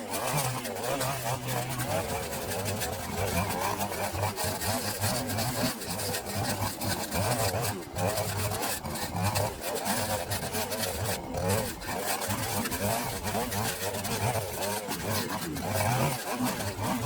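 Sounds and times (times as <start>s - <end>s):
small engine pulsing hum: 0.0s - 17.0s.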